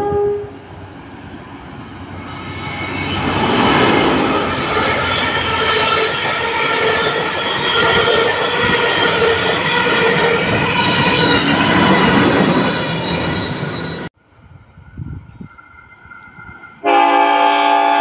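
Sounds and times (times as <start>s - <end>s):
train wheels rolling on rails: 0.5s - 18.0s
high ringing tones: 4.4s - 17.2s.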